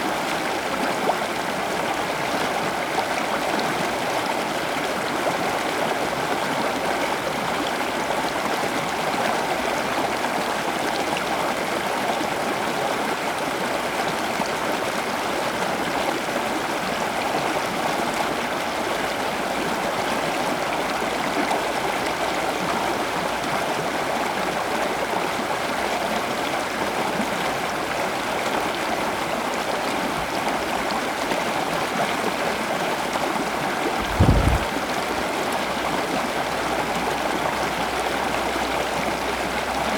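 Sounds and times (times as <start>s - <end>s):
running water rushing: 33.8s - 34.9s
low thump: 34.0s - 34.8s.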